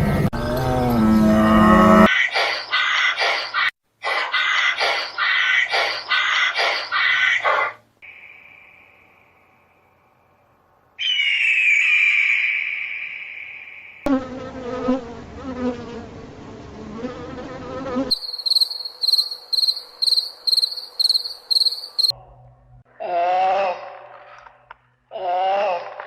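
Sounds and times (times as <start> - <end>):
high insect-like chirping: 18.1 - 22.1.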